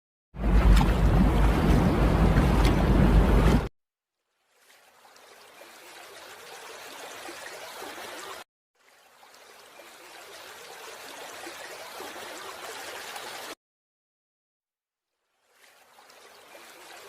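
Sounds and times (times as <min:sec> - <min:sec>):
water running and trickling: 0:04.3 - 0:13.6, 0:15.3 - 0:17.0.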